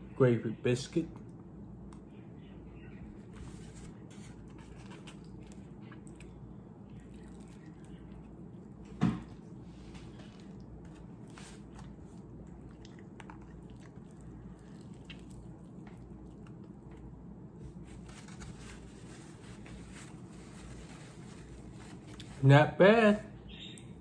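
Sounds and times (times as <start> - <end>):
person chewing fried chicken: 4.6 - 17.8.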